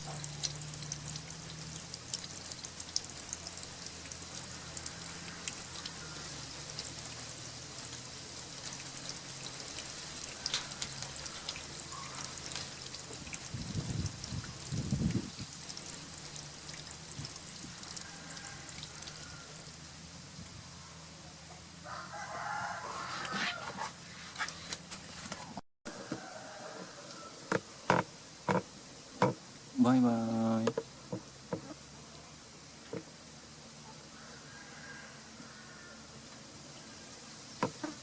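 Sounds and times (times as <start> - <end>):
water dripping and splashing: 0.0 - 20.1, 36.3 - 38.0
small sharp ticks: 8.6 - 13.0.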